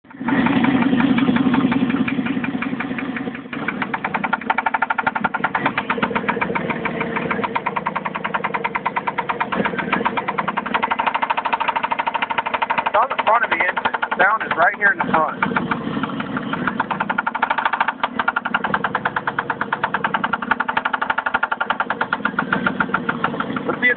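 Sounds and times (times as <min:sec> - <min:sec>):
car engine running: 0:00.0 - 0:23.9
deep hum: 0:00.0 - 0:23.9
fast even engine knocking: 0:00.0 - 0:23.9.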